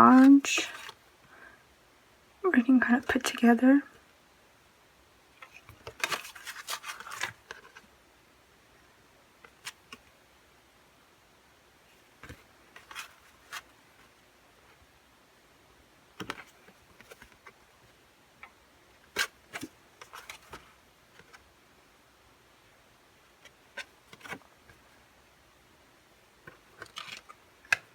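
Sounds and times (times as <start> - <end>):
paper rustling: 5.4 - 7.8, 12.2 - 14.2, 19.1 - 21.4, 23.4 - 24.9, 26.5 - 27.9.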